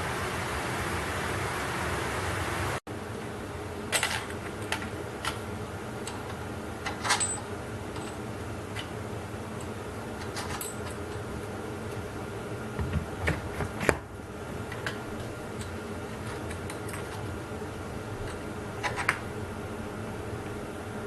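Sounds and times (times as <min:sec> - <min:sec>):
heater fan hum: 0:00.0 - 0:21.0
small metal parts clinking: 0:06.1 - 0:08.2, 0:10.2 - 0:11.2.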